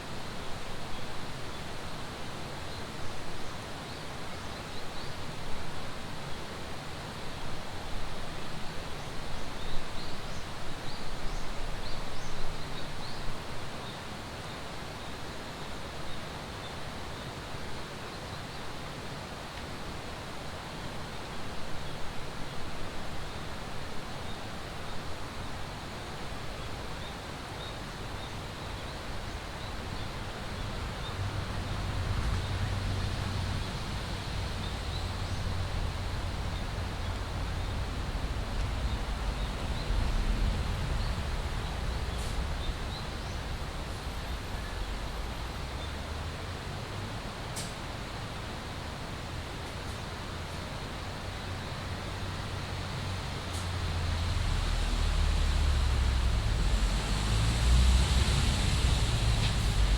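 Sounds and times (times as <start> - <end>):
wind rumbling on microphone: 30.3 - 45.8, 52.6 - 59.9
flowing water rushing: 33.1 - 59.9.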